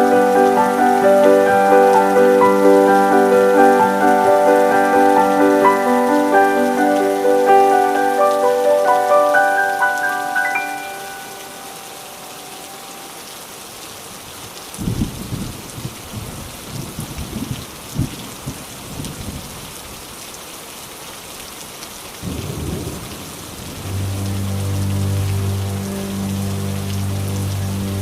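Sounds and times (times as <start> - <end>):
heavy rain falling: 0.0 - 28.0
thunder rumbling: 22.2 - 26.0.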